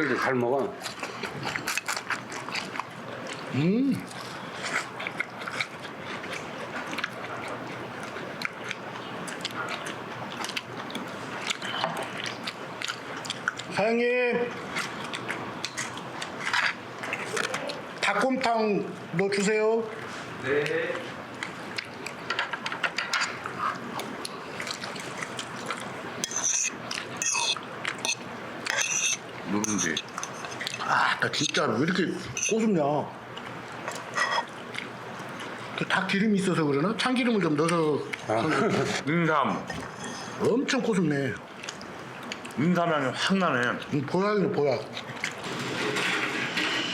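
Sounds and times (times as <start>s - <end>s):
person chewing food: 0.8s - 13.7s, 14.6s - 18.0s, 21.2s - 31.6s, 33.3s - 35.8s, 41.4s - 42.6s, 45.0s - 45.5s.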